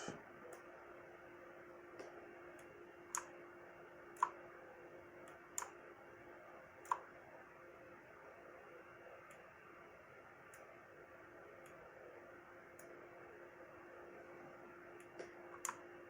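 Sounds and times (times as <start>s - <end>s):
computer mouse clicking: 2.0s - 3.4s, 4.1s - 4.4s, 5.2s - 5.8s, 6.8s - 7.1s, 12.7s - 13.0s, 15.0s - 15.9s.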